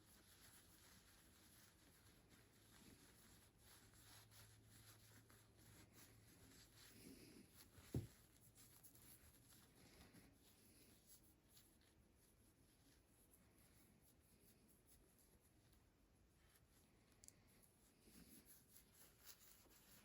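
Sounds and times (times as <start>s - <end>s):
soft low thump: 7.9s - 8.1s
cloth rubbing on pocket knife: 17.9s - 20.0s.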